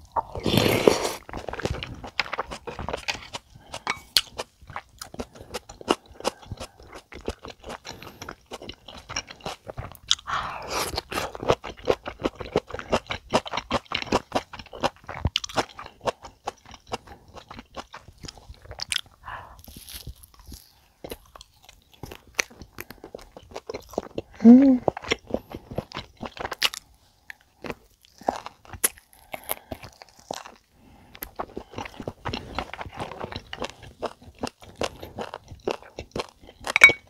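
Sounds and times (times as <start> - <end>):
person chewing crunchy food: 0.0 - 37.0.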